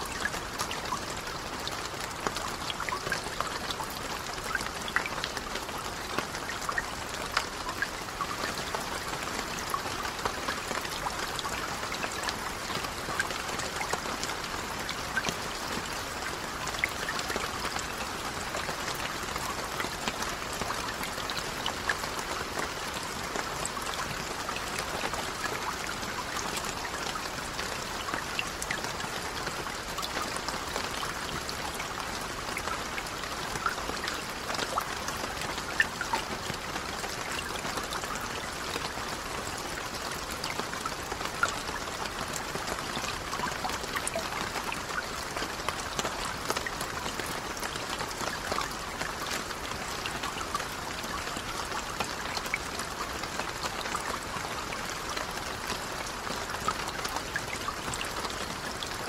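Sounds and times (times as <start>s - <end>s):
rain falling on a lake: 0.0s - 59.0s.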